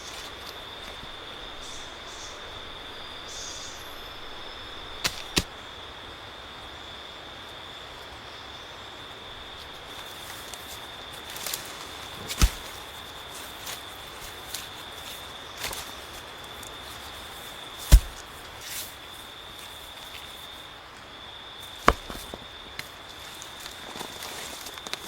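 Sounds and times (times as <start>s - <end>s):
high-pitched insect drone: 0.0s - 5.0s
forest background: 0.0s - 25.0s
sharp knocks: 17.8s - 18.3s.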